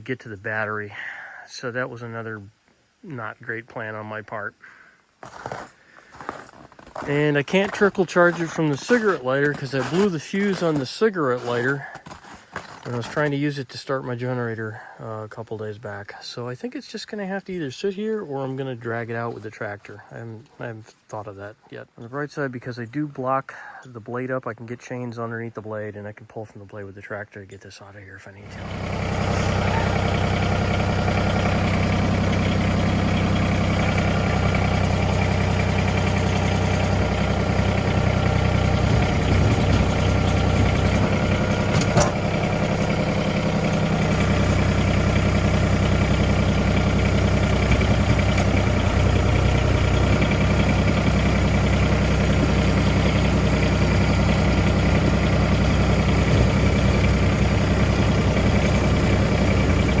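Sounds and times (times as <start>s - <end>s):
tractor engine idling: 5.3s - 13.5s, 28.4s - 60.0s.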